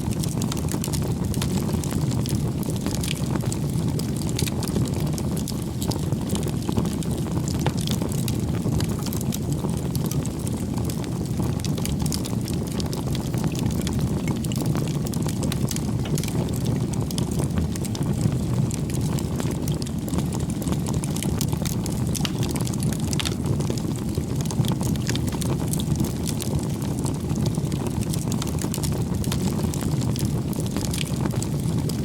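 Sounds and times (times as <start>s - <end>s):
bonfire flame rushing: 0.0s - 32.0s
wood crackling and popping: 0.0s - 32.0s.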